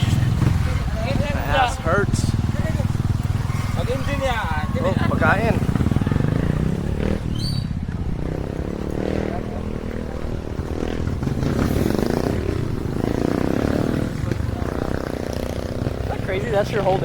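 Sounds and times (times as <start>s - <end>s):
wind and road noise: 0.0s - 17.0s
small motorcycle engine: 1.9s - 17.0s.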